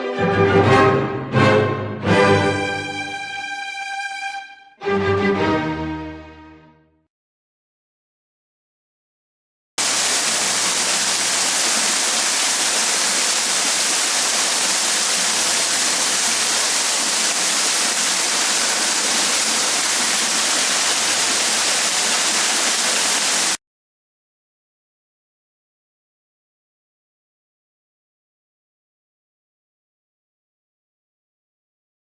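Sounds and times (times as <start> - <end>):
waterfall rushing: 9.8 - 23.6.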